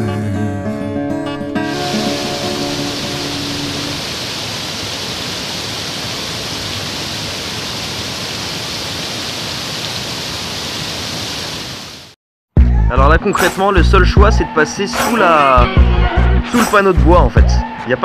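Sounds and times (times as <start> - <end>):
river water rushing: 1.6 - 12.1.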